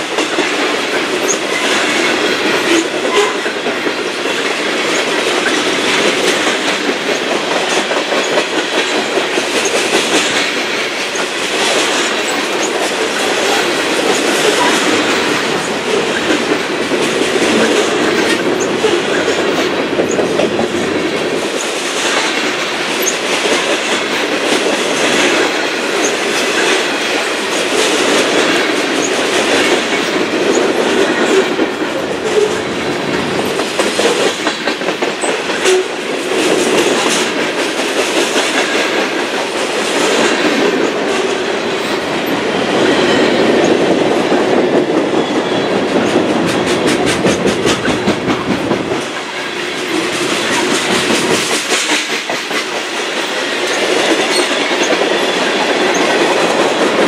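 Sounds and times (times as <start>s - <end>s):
clicking over rail joints: 0.0s - 42.4s
train wheels rumbling on rails: 0.0s - 57.0s.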